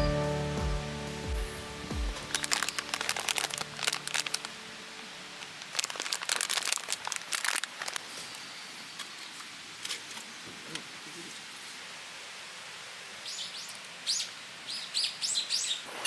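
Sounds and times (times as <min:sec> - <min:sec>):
crinkling crackling rustles: 0:01.4 - 0:11.4.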